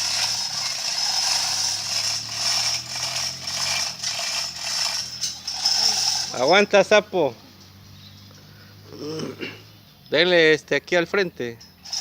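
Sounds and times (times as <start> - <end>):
ratchet mechanism clicking: 0.0 - 6.6.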